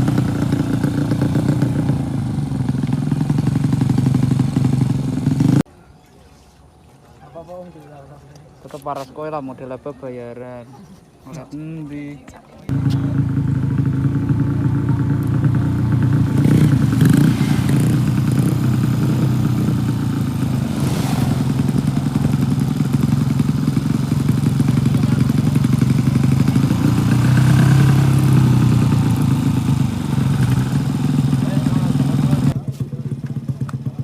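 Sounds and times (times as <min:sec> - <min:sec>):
motorcycle engine running loudly: 0:00.0 - 0:05.6, 0:12.7 - 0:34.0.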